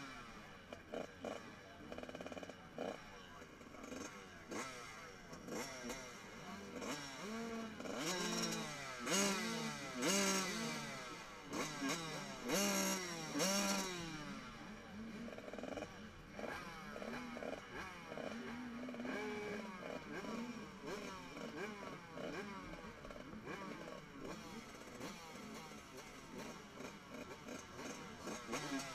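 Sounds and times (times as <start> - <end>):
motocross bike engines revving: 0.0 - 28.9.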